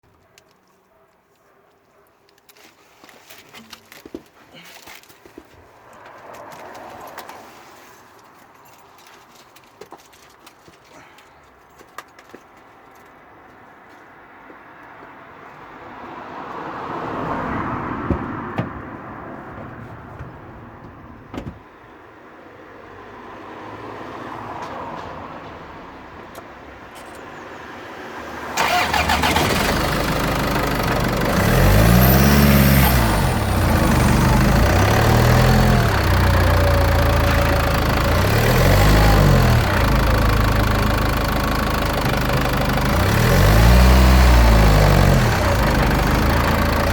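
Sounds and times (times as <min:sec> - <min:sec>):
car engine starting and running: 0:28.4 - 0:46.9.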